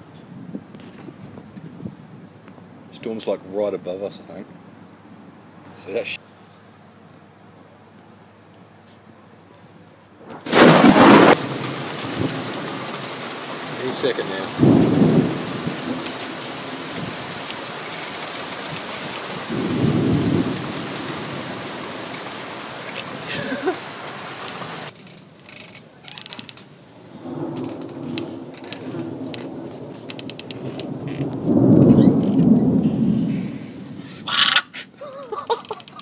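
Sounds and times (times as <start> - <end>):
rolling thunder: 10.2 - 23.9, 27.0 - 34.2
heavy rain: 10.2 - 36.0.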